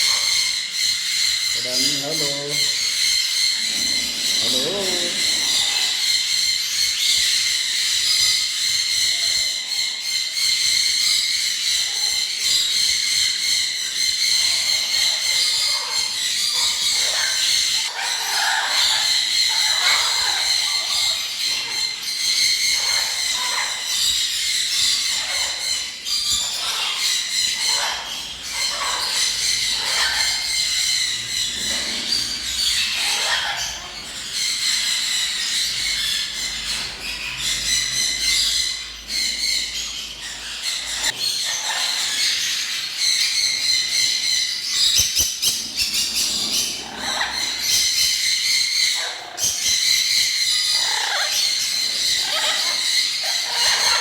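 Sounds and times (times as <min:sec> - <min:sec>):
downward gliding bird calls: 0:00.0 - 0:07.4
cage birds chirping: 0:00.0 - 0:54.0.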